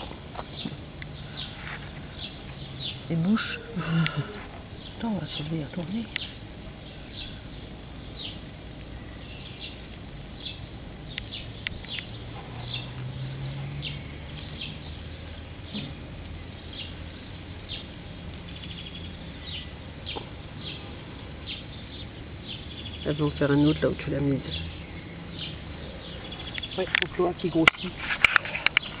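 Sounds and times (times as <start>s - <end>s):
low steady hum: 0.0s - 29.0s
small birds chirping: 0.0s - 29.0s
bird trill: 10.4s - 27.9s.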